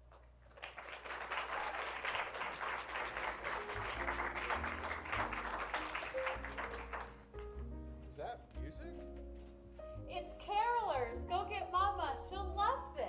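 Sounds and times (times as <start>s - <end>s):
audience applauding: 0.0s - 7.6s
instrumental music with low bass: 6.3s - 13.0s.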